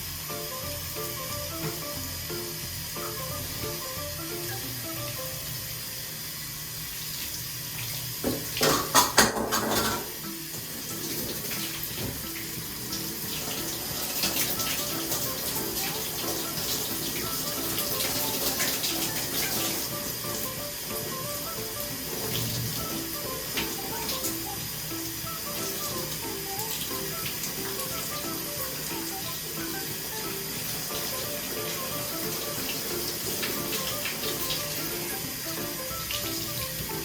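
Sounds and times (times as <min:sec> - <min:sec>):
background music: 0:00.0 - 0:05.9, 0:09.5 - 0:37.0
water running: 0:00.0 - 0:37.0.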